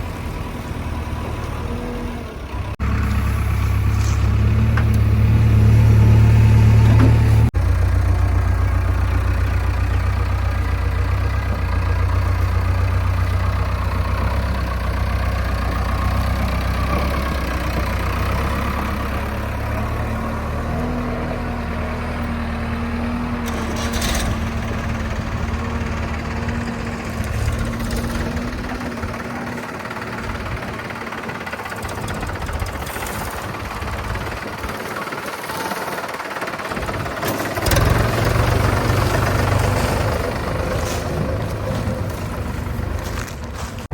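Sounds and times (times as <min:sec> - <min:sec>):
heavy machinery diesel engine running: 0:00.0 - 0:43.9.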